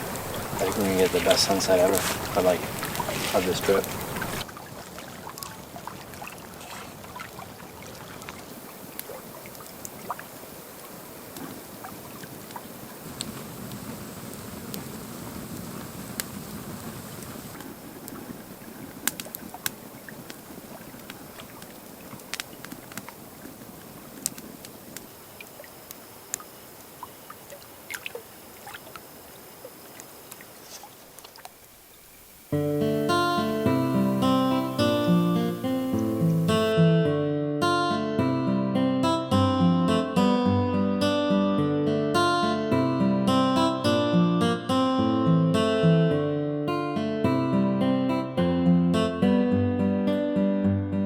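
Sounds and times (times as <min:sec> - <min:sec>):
gently lapping water: 0:00.0 - 0:32.6
light wind: 0:00.0 - 0:36.8
faint ticks and clicks: 0:05.3 - 0:32.4.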